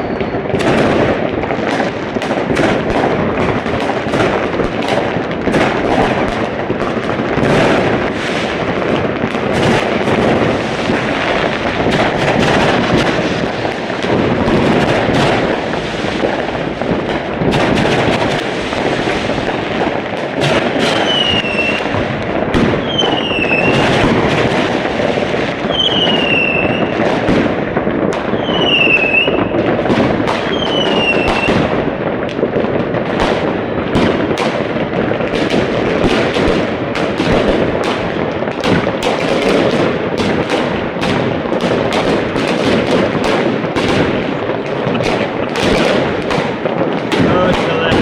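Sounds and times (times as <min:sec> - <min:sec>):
falling firework whistles: 0:00.0 - 0:00.6, 0:20.9 - 0:21.8, 0:22.8 - 0:24.0, 0:25.7 - 0:26.9, 0:28.4 - 0:29.5, 0:30.5 - 0:31.6
fireworks bangs: 0:00.0 - 0:48.0.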